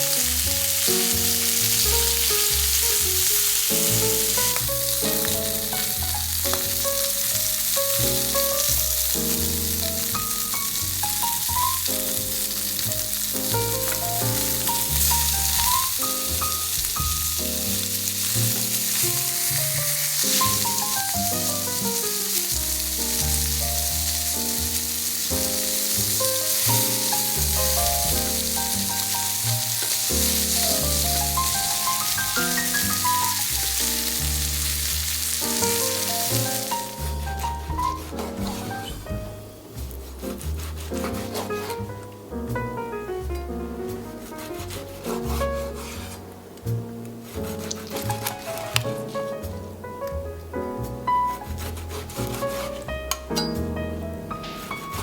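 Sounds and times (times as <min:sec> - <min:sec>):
food sizzling in a pan: 0:00.0 - 0:41.9
background music: 0:00.1 - 0:55.0.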